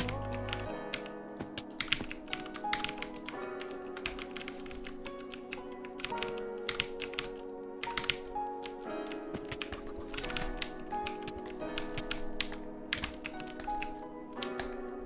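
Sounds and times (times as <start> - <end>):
background music with held chords: 0.0 - 15.0
keyboard typing: 0.0 - 15.0.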